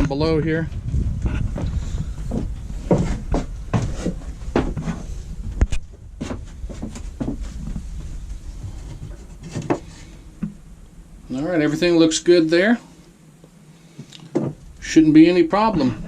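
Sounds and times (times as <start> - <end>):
wooden knocks and bumps: 1.2 - 10.6, 14.3 - 14.6.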